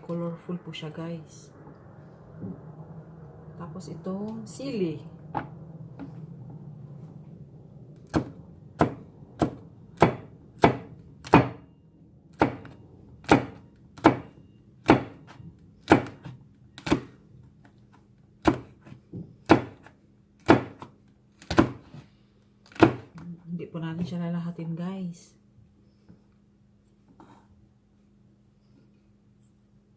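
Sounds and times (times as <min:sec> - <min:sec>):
knife chopping on cutting board: 0:08.1 - 0:11.6, 0:12.4 - 0:15.2, 0:18.4 - 0:22.0.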